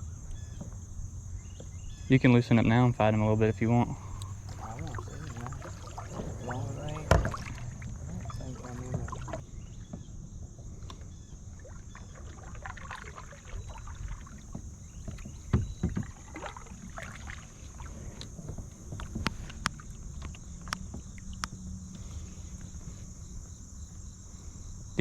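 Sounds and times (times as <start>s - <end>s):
high insect drone: 0.0s - 25.0s
light knocks against boat: 3.7s - 10.1s, 14.3s - 16.4s, 18.2s - 21.6s
loud thumps on boat: 3.9s - 10.1s, 14.4s - 16.4s.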